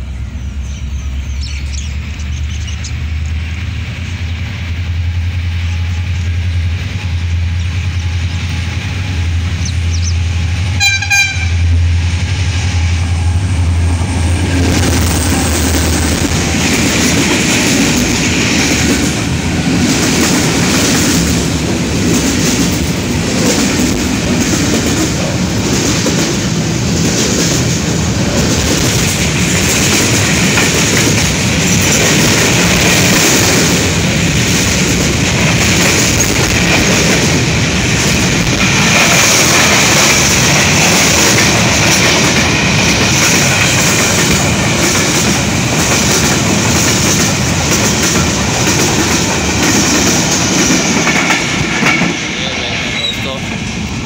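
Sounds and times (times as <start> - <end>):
diesel locomotive engine drone: 0.0 - 54.0
train horn toot: 10.7 - 11.8
wheels clacking over rail joints: 12.5 - 54.0.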